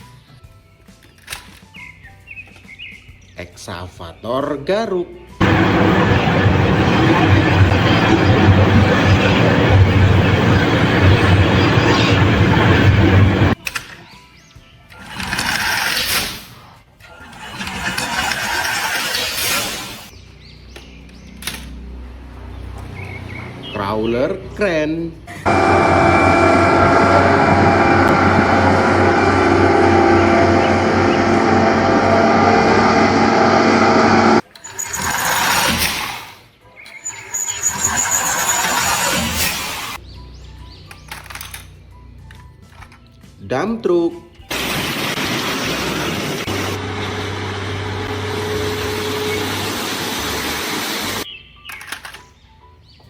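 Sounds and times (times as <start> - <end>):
diesel truck engine running: 5.4 - 13.6, 25.5 - 34.4, 44.5 - 51.2
motor humming and whining: 5.4 - 13.6, 14.9 - 20.1, 25.4 - 40.0, 44.5 - 51.2.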